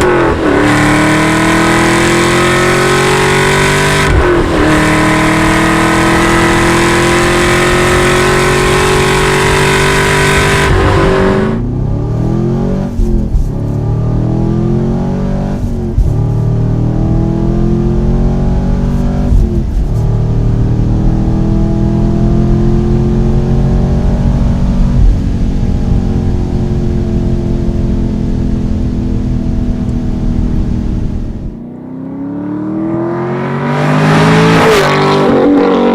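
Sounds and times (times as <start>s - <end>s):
car engine revving: 0.0s - 35.9s.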